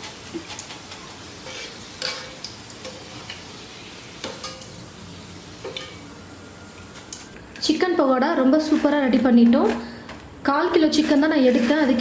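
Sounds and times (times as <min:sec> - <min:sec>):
food sizzling in hot oil: 0:00.0 - 0:07.4.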